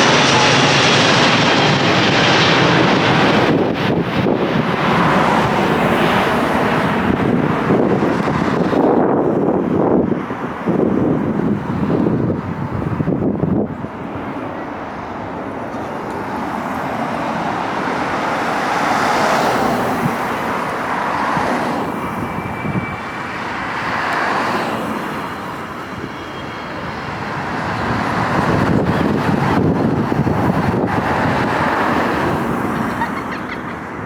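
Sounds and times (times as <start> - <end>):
jet engines roaring: 0.0 - 34.0
faint high whine: 21.9 - 23.8.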